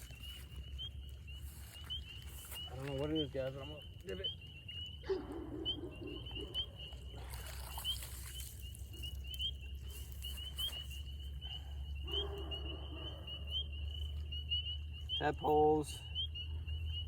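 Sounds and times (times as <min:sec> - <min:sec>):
spring peepers peeping: 0:00.0 - 0:17.0
water splashing: 0:06.9 - 0:10.7.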